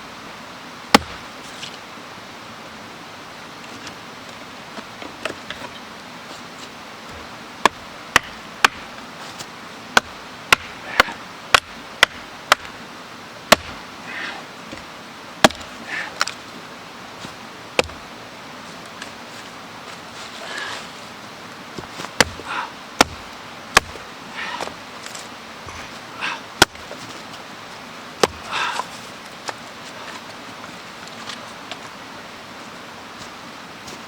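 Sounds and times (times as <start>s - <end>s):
blade chopping wood: 0.9s - 1.2s, 7.6s - 8.9s, 10.0s - 12.8s, 13.5s - 13.8s, 15.4s - 15.7s, 22.1s - 22.4s, 23.0s - 24.0s, 28.2s - 28.4s
soft rustling: 18.6s - 22.3s.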